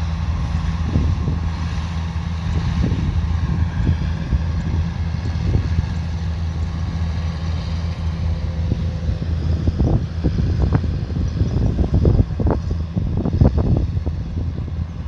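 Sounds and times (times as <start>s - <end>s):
diesel engine drone: 0.0s - 15.0s
machinery noise: 0.0s - 15.0s.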